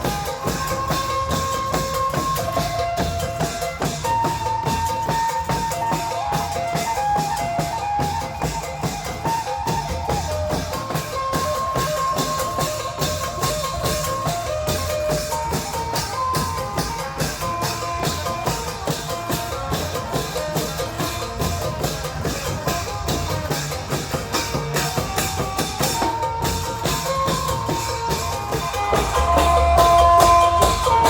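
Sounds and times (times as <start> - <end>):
fast drumming: 0.0 - 31.0
held melody line: 0.0 - 31.0.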